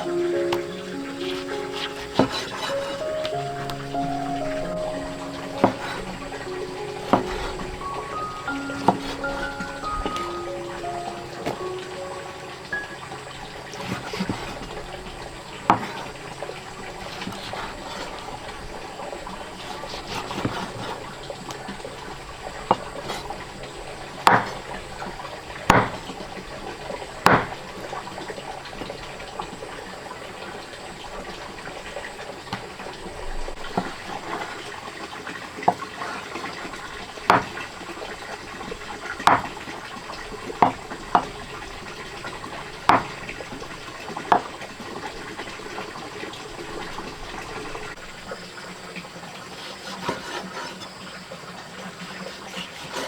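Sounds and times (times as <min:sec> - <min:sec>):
water running and splashing: 0:00.0 - 0:53.0
sharp knocks: 0:27.3 - 0:27.6.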